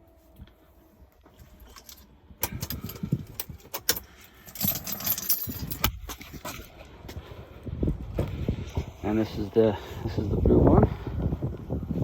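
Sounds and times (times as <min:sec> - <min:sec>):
clicking and rattling handling noise: 0:01.2 - 0:06.9.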